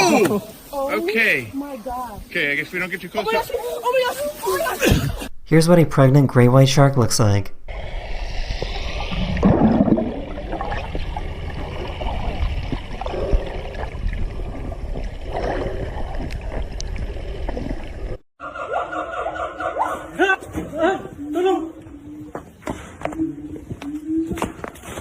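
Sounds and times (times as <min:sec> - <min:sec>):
low rumble: 0:07.6 - 0:18.2
water sloshing and gurgling: 0:08.4 - 0:18.2.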